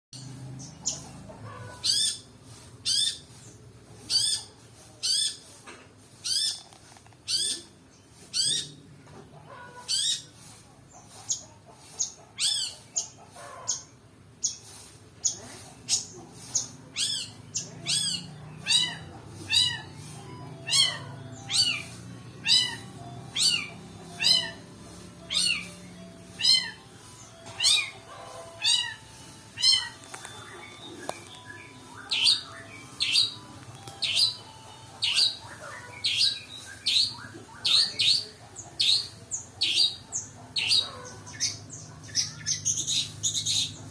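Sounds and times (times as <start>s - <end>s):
shrike calling: 9.5s - 43.9s.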